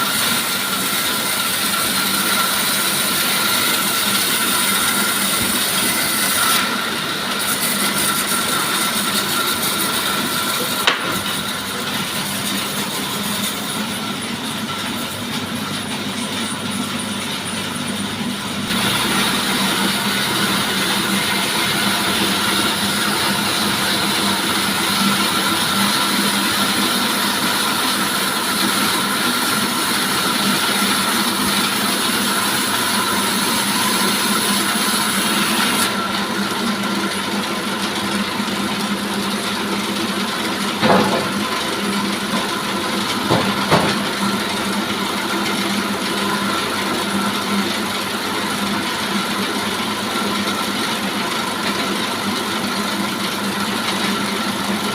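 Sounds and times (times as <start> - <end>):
sawmill sawing wood: 0.0 - 54.9.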